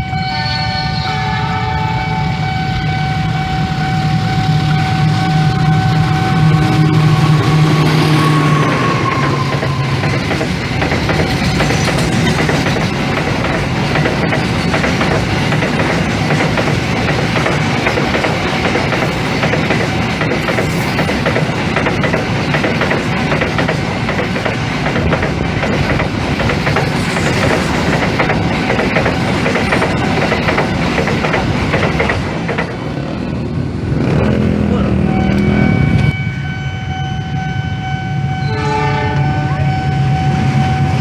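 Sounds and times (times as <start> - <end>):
passenger train passing: 0.0 - 41.0
train wheels clicking over rails: 2.9 - 34.6.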